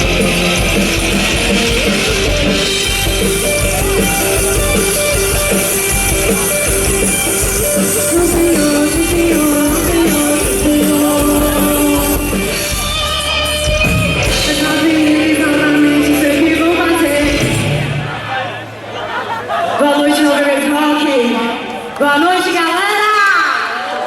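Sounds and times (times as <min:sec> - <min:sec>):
drum kit: 0:00.0 - 0:18.2
bass: 0:00.0 - 0:18.8
electric guitars: 0:00.0 - 0:18.9
person singing long notes: 0:07.7 - 0:12.8, 0:14.2 - 0:17.7.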